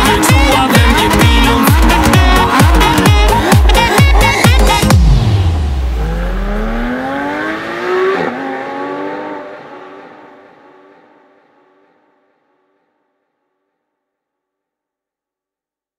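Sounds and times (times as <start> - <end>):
dance music: 0.0 - 6.9
car engine accelerating: 0.0 - 12.8.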